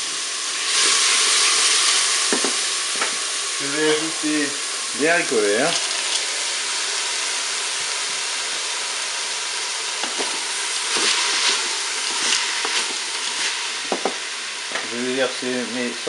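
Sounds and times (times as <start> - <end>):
food sizzling in hot oil: 0.0 - 16.0
spatula scraping: 10.9 - 13.6.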